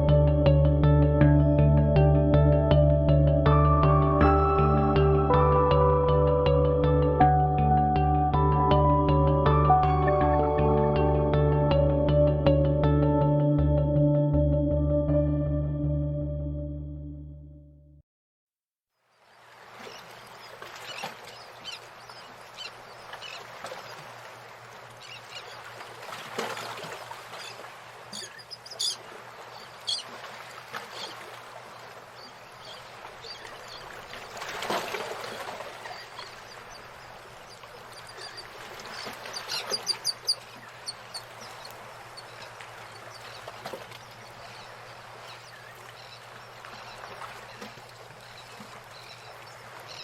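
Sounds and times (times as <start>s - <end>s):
birds chirping: 27.4s - 30.1s, 31.8s - 34.2s, 35.7s - 50.0s.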